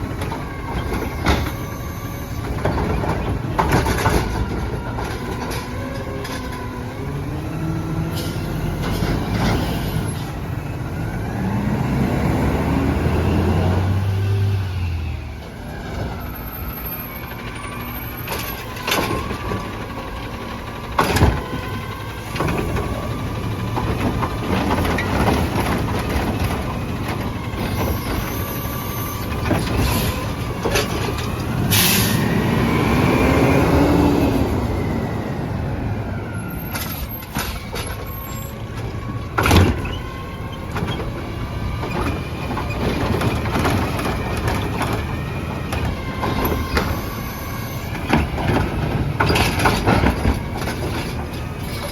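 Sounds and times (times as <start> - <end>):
trash truck engine running: 0.0 - 51.9
air brake hiss: 31.7 - 32.2.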